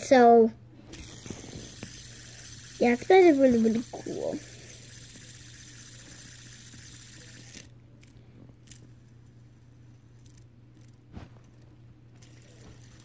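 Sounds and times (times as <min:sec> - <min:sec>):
steady low hum: 0:00.0 - 0:13.0
fidget spinner clicks: 0:00.9 - 0:09.0, 0:10.1 - 0:11.6, 0:12.2 - 0:13.0.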